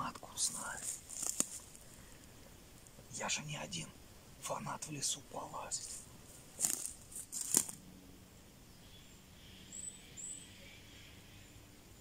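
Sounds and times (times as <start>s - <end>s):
sharp crackles: 0.1s - 1.9s, 5.8s - 7.8s
bird chirping: 8.5s - 12.0s.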